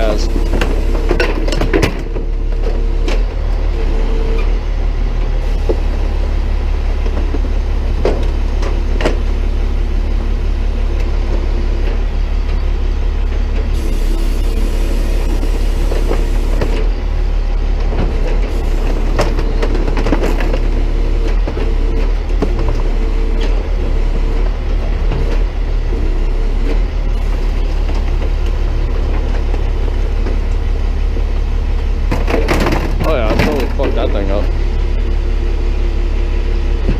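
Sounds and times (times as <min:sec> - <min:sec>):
truck engine running: 0:00.0 - 0:36.9.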